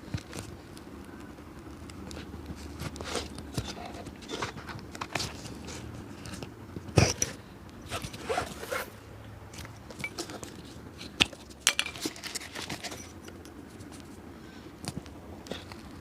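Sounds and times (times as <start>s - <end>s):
tools scraping and clicking on shoe: 2.1s - 9.0s, 9.6s - 14.2s.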